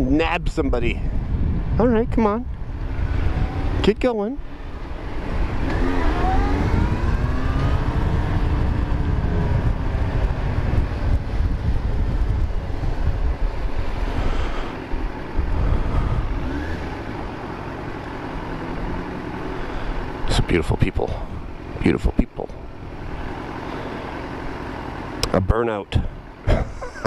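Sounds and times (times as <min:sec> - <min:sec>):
wind rumble on microphone: 0:00.0 - 0:04.1, 0:04.7 - 0:17.2
motorcycle engine revving: 0:01.3 - 0:21.8, 0:22.6 - 0:25.5.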